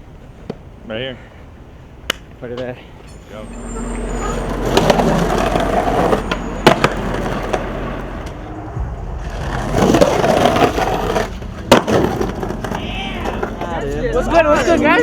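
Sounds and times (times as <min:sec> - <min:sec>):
skateboard wheels rolling: 0:00.0 - 0:15.0
skateboard clacks: 0:04.3 - 0:08.4, 0:09.2 - 0:14.0.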